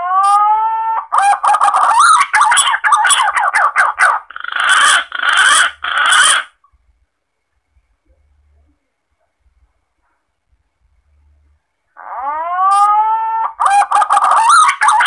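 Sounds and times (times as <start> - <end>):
harsh rasping calls: 0.2 - 6.6, 12.0 - 15.0.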